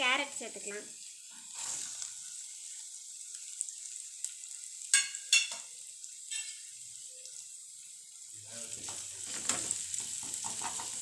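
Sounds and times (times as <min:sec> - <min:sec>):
carrots sizzling in oil: 0:00.0 - 0:11.0
metal clanks against pan: 0:04.9 - 0:05.7, 0:06.3 - 0:06.6, 0:08.8 - 0:11.0.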